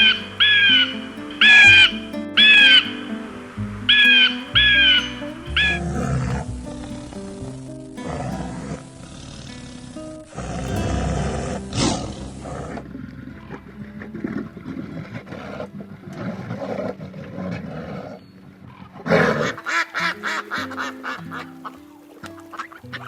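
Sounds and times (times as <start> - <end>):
background music: 0.0 - 15.5
loud rough animal call: 8.0 - 21.7.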